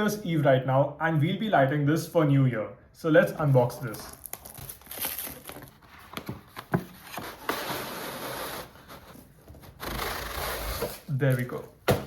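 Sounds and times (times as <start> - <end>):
cardboard rustling scrape: 4.7 - 11.5.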